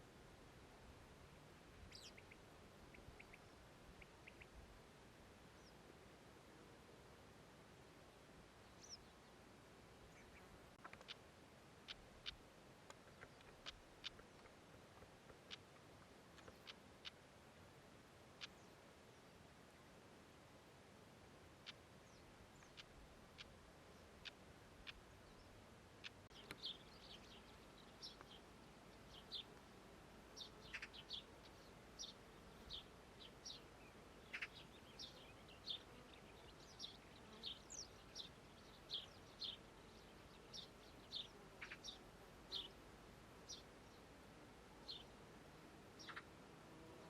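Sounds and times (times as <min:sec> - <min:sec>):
soft steady background hiss: 0:00.0 - 0:47.0
small bird chirping: 0:01.9 - 0:04.6, 0:13.0 - 0:14.6, 0:15.4 - 0:17.2, 0:21.6 - 0:28.4, 0:30.4 - 0:42.8, 0:46.0 - 0:46.3.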